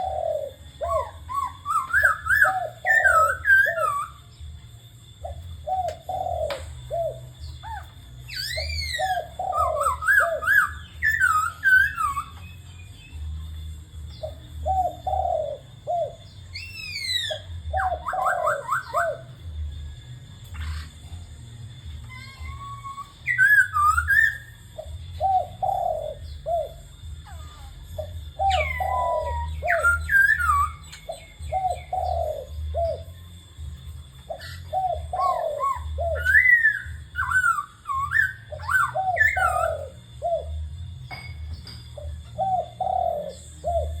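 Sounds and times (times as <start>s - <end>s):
bird singing whistled phrases: 0.0s - 4.4s, 5.6s - 13.2s, 14.1s - 19.4s, 22.0s - 33.1s, 34.3s - 40.6s
dove cooing: 0.0s - 12.9s, 14.1s - 19.7s, 22.0s - 44.0s.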